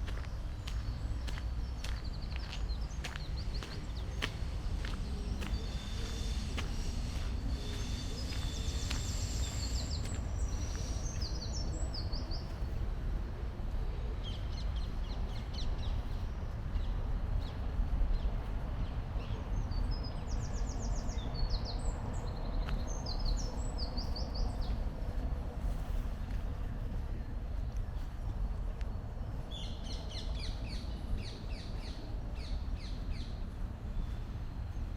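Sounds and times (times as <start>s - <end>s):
songbirds chirping and trilling: 0.0s - 12.9s, 13.7s - 25.0s
low rumble: 0.0s - 20.7s.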